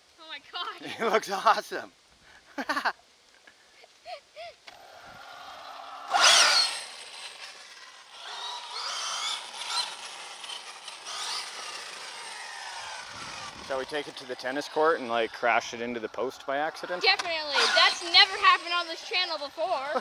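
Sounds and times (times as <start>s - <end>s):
electric motor whining: 4.7s - 20.0s.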